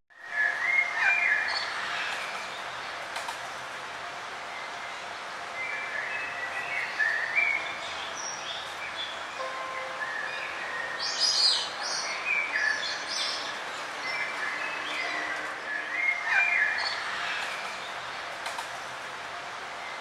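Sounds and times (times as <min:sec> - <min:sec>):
songbirds chirping: 0:00.1 - 0:20.0
steady background hiss: 0:00.2 - 0:20.0.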